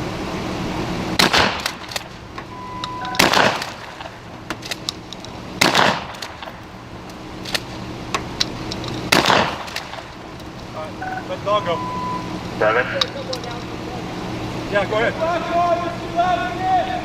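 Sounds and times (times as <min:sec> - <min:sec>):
loud shotgun shots: 0:01.2 - 0:02.1, 0:03.2 - 0:04.2, 0:05.6 - 0:06.5, 0:09.1 - 0:10.1
brief electronic beep: 0:02.5 - 0:03.2, 0:11.0 - 0:12.3.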